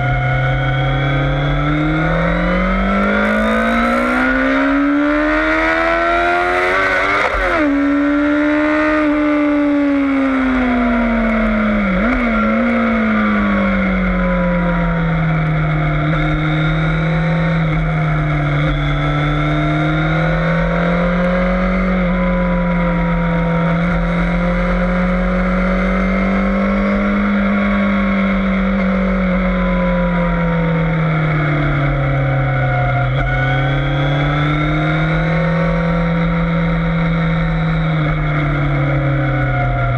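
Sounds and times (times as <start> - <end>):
motorcycle engine running hard: 0.0 - 39.9.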